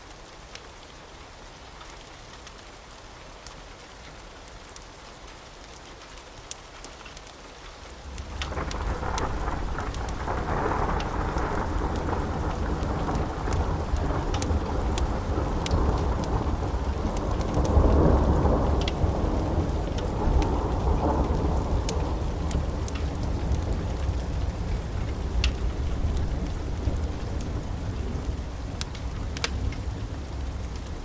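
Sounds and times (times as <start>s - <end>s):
steady rain: 0.0s - 31.0s
wood fire crackling: 4.4s - 31.0s
rolling thunder: 8.1s - 31.0s.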